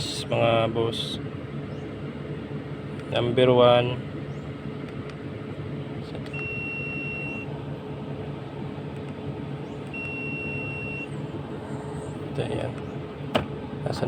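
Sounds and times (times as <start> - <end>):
car engine running: 0.0 - 14.0
long electronic beeps: 6.3 - 7.5, 9.9 - 11.2.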